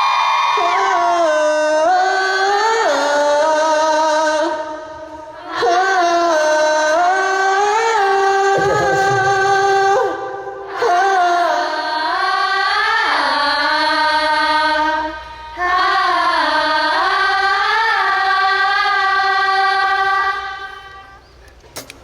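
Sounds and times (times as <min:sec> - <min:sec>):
high voice singing wordless melody: 0:05.5 - 0:11.8.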